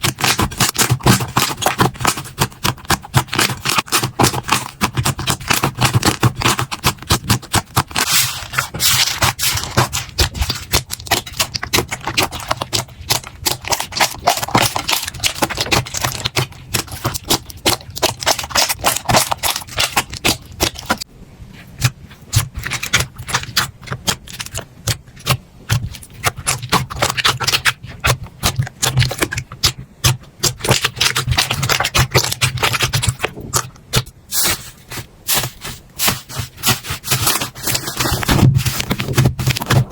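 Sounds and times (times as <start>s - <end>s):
slime crackling and popping: 0.0s - 21.0s, 21.8s - 39.9s.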